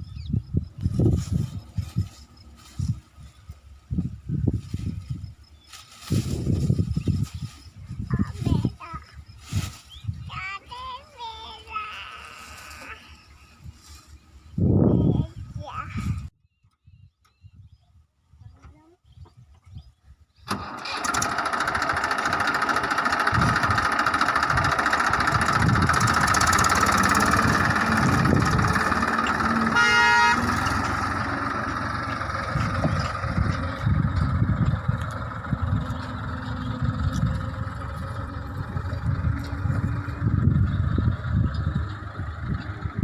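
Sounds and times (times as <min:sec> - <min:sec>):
tractor engine running: 0:00.0 - 0:09.3, 0:20.4 - 0:43.0
horn: 0:29.7 - 0:30.7.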